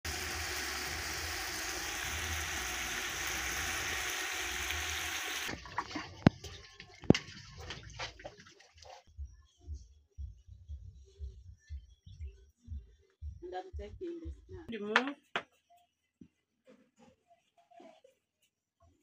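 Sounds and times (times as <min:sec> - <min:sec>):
meat sizzling in a pot: 0:00.0 - 0:05.6.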